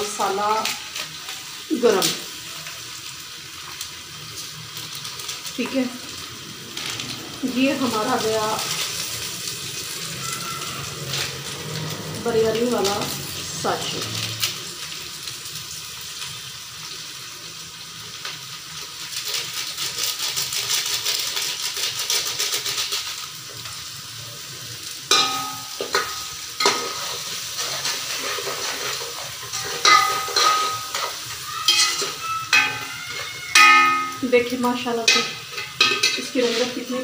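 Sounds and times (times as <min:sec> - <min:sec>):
onions sizzling in hot oil: 0:00.0 - 0:37.0
metal ladle knocking against pot: 0:33.6 - 0:34.2.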